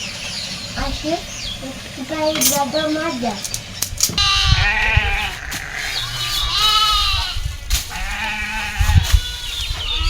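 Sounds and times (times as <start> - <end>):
wind noise on microphone: 3.2 - 10.0
goat or sheep bleating: 4.2 - 10.0.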